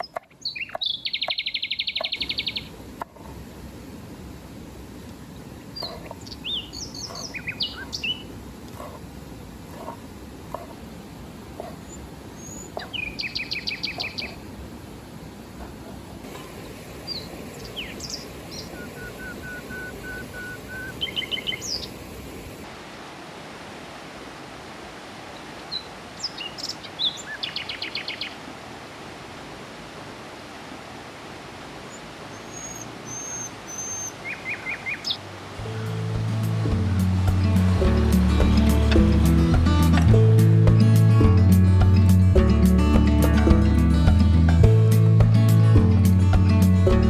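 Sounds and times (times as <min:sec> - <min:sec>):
birds calling in repeated notes: 0:00.0 - 0:02.7, 0:05.4 - 0:09.1, 0:11.6 - 0:14.4, 0:15.6 - 0:22.0, 0:25.4 - 0:28.4, 0:31.9 - 0:42.1
river water rushing: 0:00.0 - 0:47.0.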